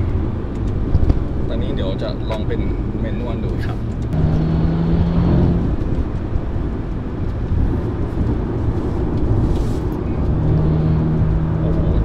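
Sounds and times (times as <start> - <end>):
car engine accelerating hard: 0.0 - 12.0
road and tyre noise: 0.0 - 12.0.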